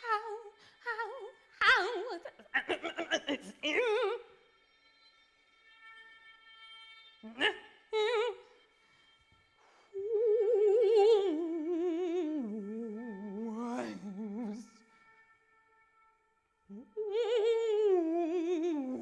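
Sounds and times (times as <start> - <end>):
wordless voice singing with vibrato: 0.0 - 4.5, 7.2 - 8.7, 9.9 - 15.3, 16.7 - 19.0.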